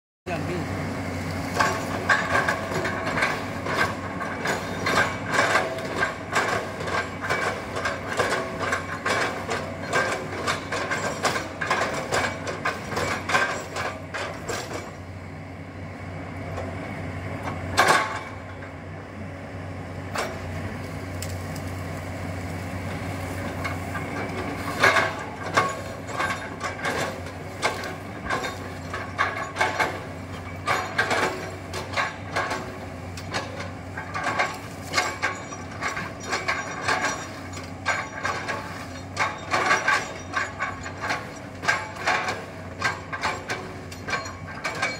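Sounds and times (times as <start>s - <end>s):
excavator engine hum: 0.3s - 44.9s
metallic clanks and knocks: 1.5s - 15.0s, 17.4s - 18.8s, 22.8s - 44.9s.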